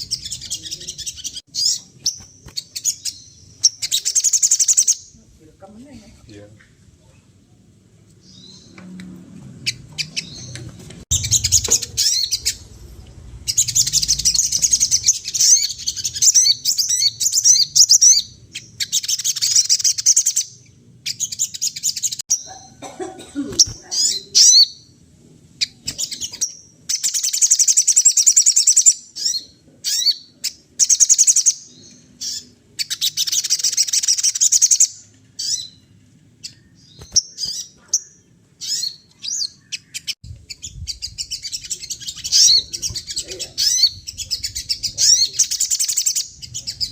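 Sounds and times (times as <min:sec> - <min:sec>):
songbird rapid chattering song: 0:00.0 - 0:05.2, 0:09.6 - 0:22.8, 0:23.6 - 0:46.9.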